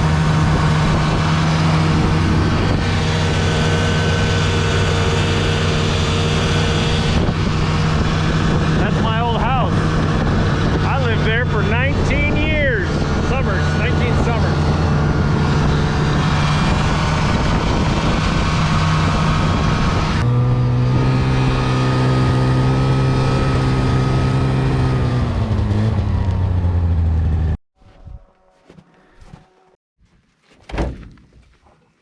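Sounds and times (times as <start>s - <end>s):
light aircraft engine and propeller: 0.0s - 20.3s.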